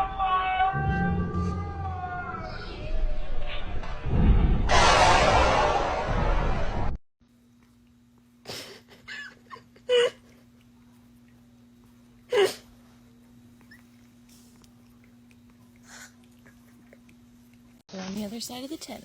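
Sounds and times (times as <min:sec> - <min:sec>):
loud noisy sound: 0:00.7 - 0:07.0
steady low hum: 0:00.8 - 0:18.1.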